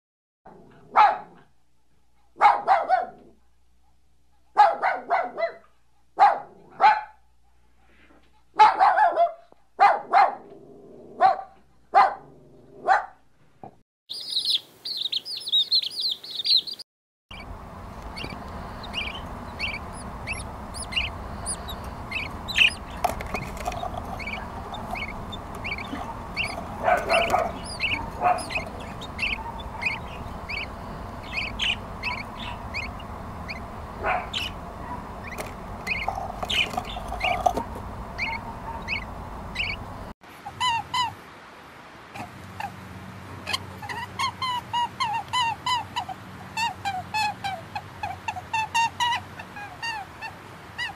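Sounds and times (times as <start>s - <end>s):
puppy barking: 0.7s - 1.5s, 2.3s - 3.4s, 4.5s - 7.2s, 8.5s - 10.5s, 11.2s - 13.2s, 18.1s - 39.8s
parrot chicks chirping: 14.1s - 41.1s
high rapid chirping: 14.2s - 40.1s
parrot squawks: 18.1s - 39.8s.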